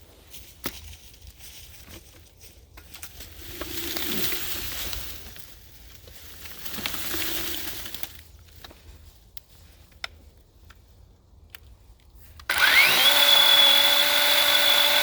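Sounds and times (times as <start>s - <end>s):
chainsaw cutting wood: 12.4s - 15.0s.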